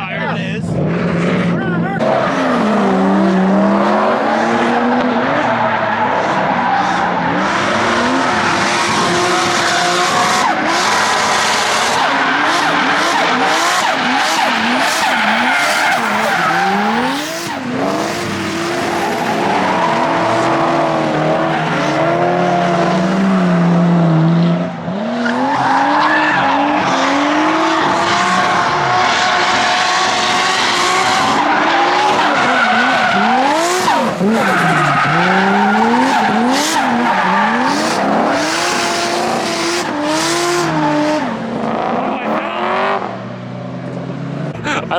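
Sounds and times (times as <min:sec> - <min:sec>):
car engines revving: 0:00.0 - 0:44.9
tyre screech: 0:09.0 - 0:20.8, 0:31.2 - 0:40.8.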